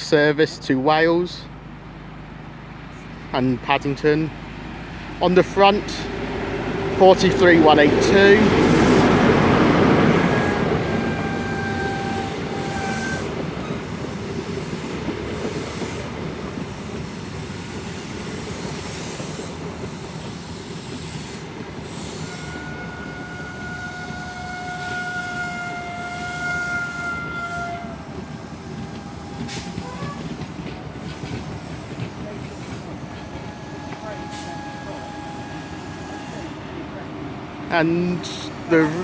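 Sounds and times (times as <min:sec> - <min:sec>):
train wheels rumbling on rail: 0:00.0 - 0:39.0
high brake squeal: 0:33.3 - 0:36.5.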